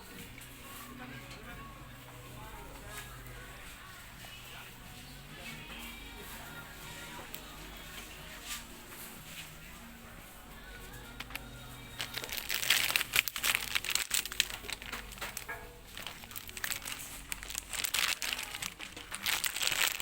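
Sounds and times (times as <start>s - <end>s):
plastic snack packet crinkling: 10.9s - 20.0s.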